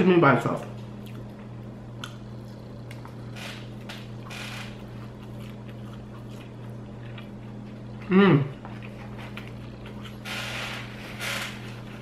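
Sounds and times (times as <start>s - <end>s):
steady low hum: 0.0s - 12.0s
wet chewing mouth sounds: 0.8s - 10.2s.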